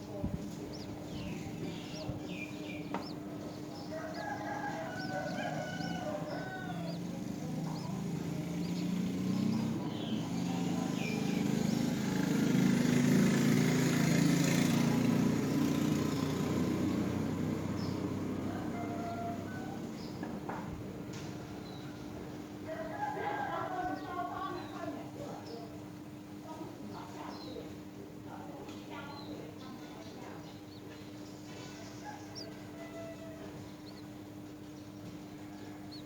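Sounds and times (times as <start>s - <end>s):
drawn-out bird call: 0.6s - 19.8s, 31.5s - 36.0s.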